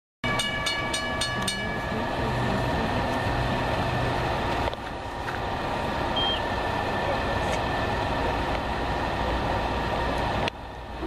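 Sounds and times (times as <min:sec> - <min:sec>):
diesel train engine rumble: 0:00.2 - 0:11.0.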